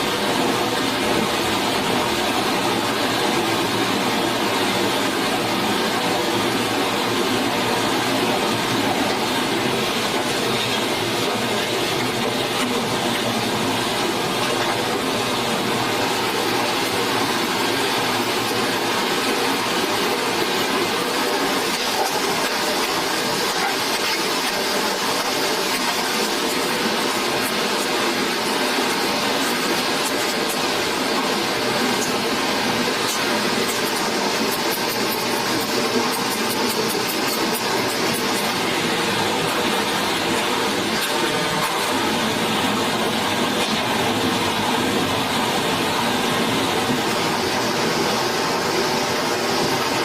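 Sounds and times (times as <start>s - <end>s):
stream water rushing: 0.0s - 50.0s.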